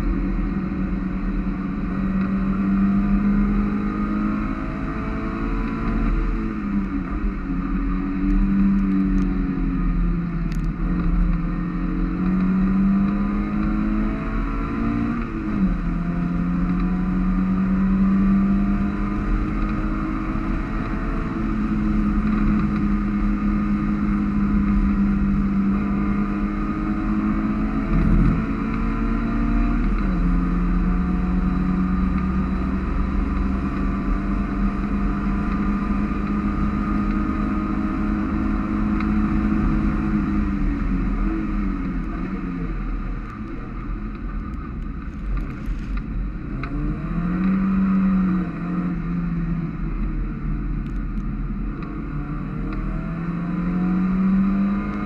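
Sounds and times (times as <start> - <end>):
wind and road noise: 0.0 - 55.0
race car engine revving: 12.1 - 42.8.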